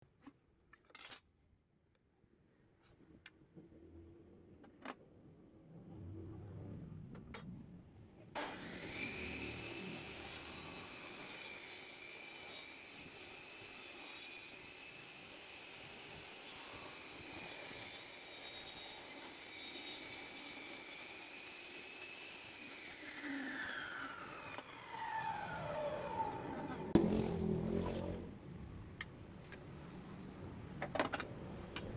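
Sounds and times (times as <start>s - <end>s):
saw spinning down: 8.4s - 11.6s, 21.1s - 28.3s
table saw blade whining: 8.4s - 27.1s.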